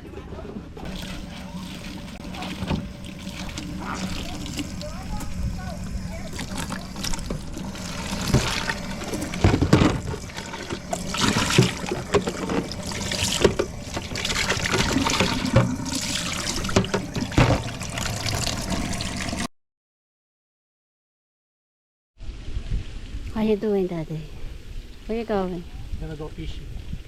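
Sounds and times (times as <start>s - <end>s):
water trickling and splashing: 0.8s - 19.5s
knocks and clatter: 8.2s - 13.8s.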